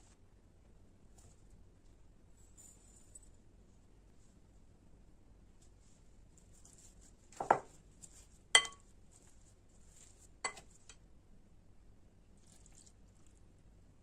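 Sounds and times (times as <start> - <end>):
kitchenware clinking: 8.6 - 8.8, 10.4 - 10.7.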